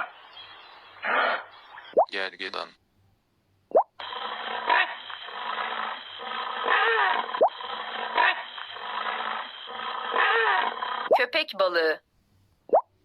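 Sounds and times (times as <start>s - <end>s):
rhinoceros call with squeals: 4.2s - 11.1s.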